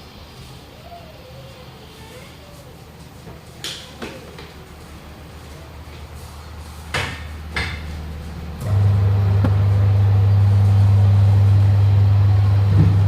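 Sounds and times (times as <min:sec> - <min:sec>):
machine humming low: 0:04.6 - 0:13.0
sharp knocks on metal: 0:06.9 - 0:08.0.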